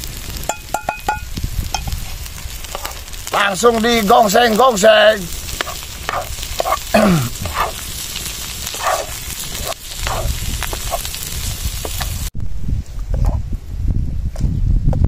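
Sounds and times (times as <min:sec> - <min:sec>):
food sizzling in a wok: 0:00.0 - 0:12.3
wooden spatula scraping: 0:01.8 - 0:03.5, 0:04.5 - 0:12.1.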